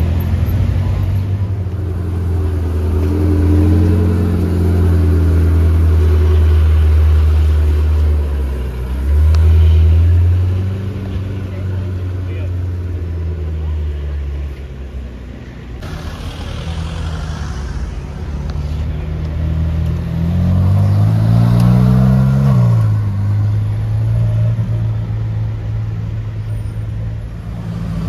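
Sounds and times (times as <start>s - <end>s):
sports car engine revving: 15.8s - 24.0s.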